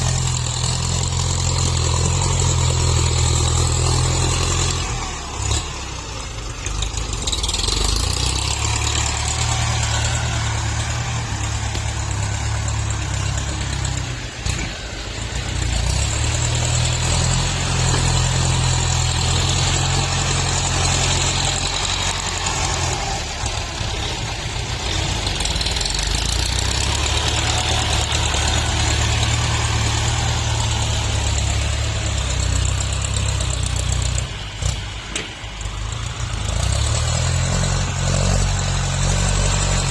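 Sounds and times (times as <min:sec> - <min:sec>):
diesel tractor engine under load: 0:00.0 - 0:39.9.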